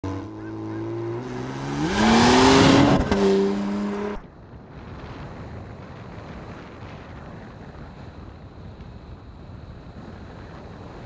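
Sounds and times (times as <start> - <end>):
car engine accelerating hard: 0.0 - 4.2.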